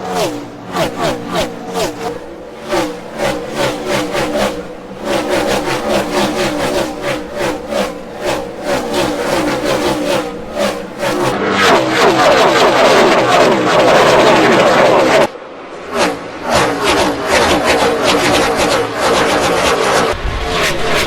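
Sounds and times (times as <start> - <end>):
race car engines passing: 0.0 - 21.0.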